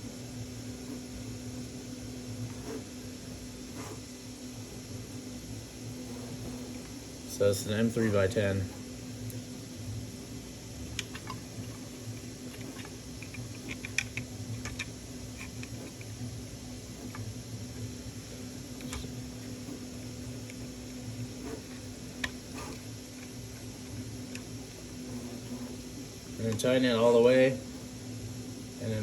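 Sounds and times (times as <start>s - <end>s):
steady low hum: 0.0s - 29.0s
small clicks and taps of handling: 12.5s - 16.1s.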